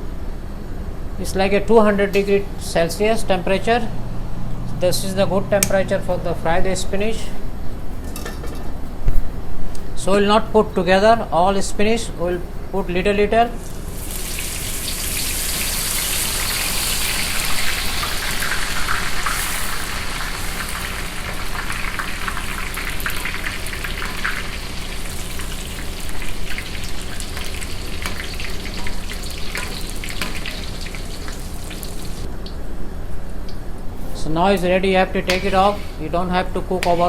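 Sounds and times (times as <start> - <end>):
spinach deep-frying in oil: 13.6 - 32.3.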